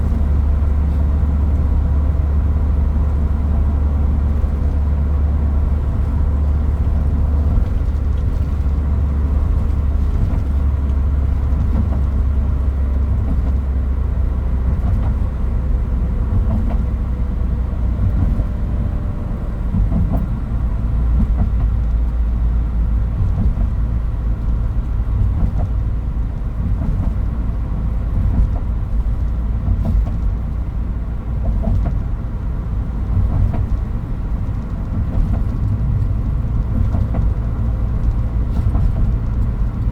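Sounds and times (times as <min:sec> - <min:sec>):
deep engine drone: 0:00.0 - 0:39.9
knocks and rattles in cab: 0:05.7 - 0:13.7, 0:14.5 - 0:15.4, 0:16.2 - 0:17.2, 0:17.9 - 0:18.8, 0:19.5 - 0:22.5, 0:23.1 - 0:39.9.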